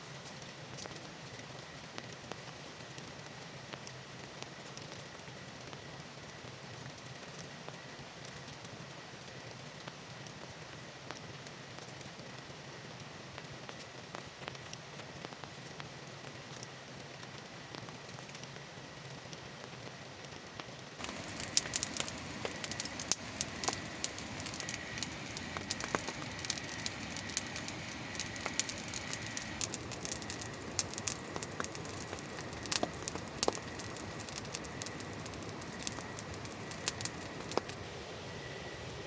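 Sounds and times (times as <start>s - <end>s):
campfire crackling and popping: 0.2s - 37.9s
rain hissing: 21.0s - 39.0s.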